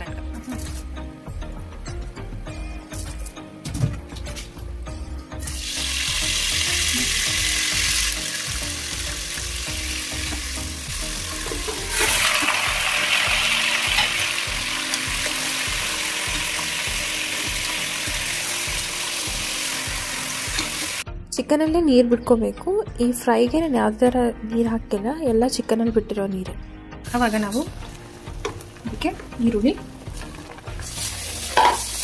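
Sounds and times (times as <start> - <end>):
hot oil sizzling: 5.4 - 21.0, 27.1 - 32.0
chicken tipped into oil and stirred: 11.4 - 14.3, 30.2 - 32.0.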